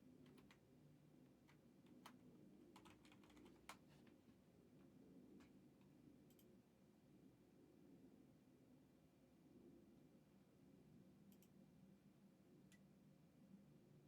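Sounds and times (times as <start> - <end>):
low room hum: 0.0 - 14.0
computer keyboard typing: 1.9 - 3.8.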